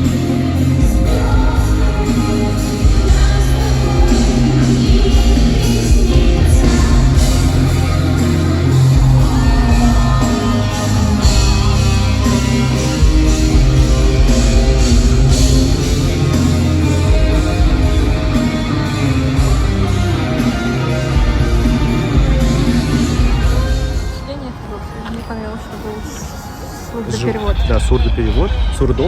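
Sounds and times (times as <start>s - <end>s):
live rock band with singer: 0.0s - 25.0s.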